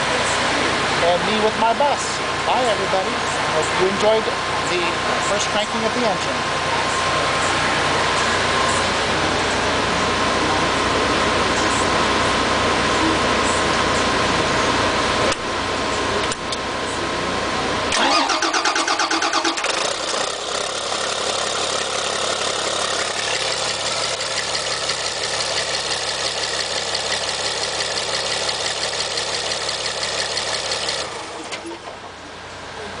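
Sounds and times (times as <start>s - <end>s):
bus engine cranking and running: 17.6s - 33.0s.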